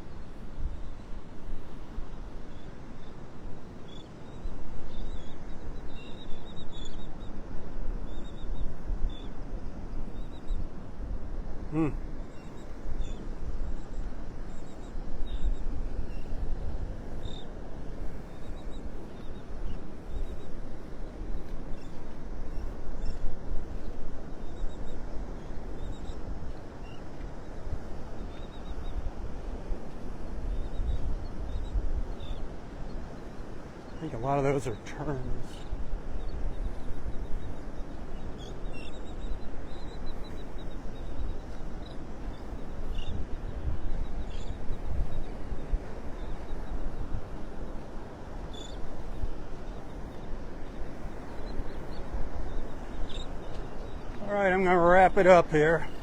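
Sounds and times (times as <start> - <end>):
seabird calls: 11.6 - 13.3, 31.5 - 56.0
wind buffeting microphone: 15.0 - 54.8.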